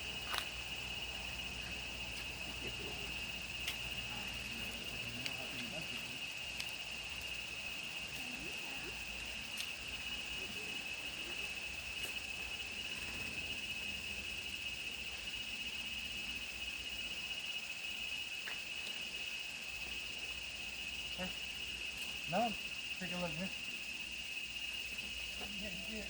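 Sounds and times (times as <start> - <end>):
insects buzzing: 0.0 - 26.0
faint ticks: 0.2 - 0.6, 3.6 - 7.3.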